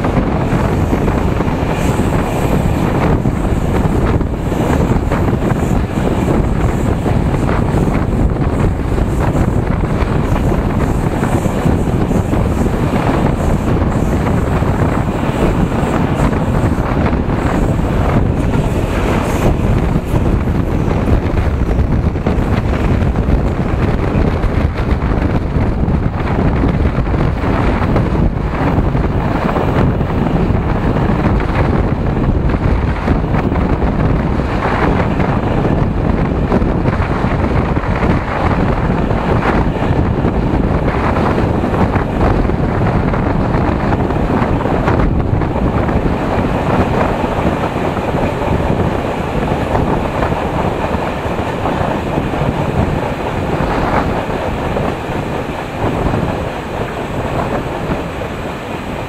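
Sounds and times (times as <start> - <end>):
train wheels rumbling on rails: 0.0 - 59.0
wind buffeting microphone: 0.0 - 59.0.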